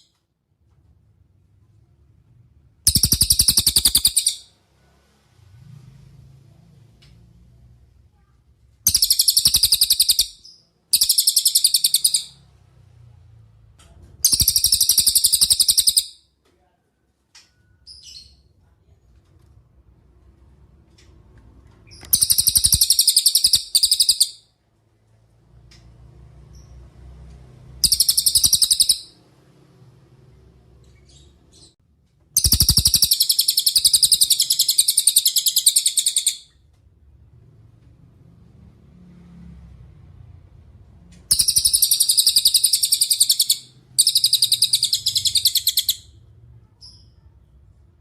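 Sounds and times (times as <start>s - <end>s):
bird chattering trills: 2.9s - 4.4s, 8.9s - 12.3s, 14.3s - 16.1s, 22.2s - 24.3s, 27.8s - 29.1s, 32.4s - 36.4s, 41.3s - 46.0s.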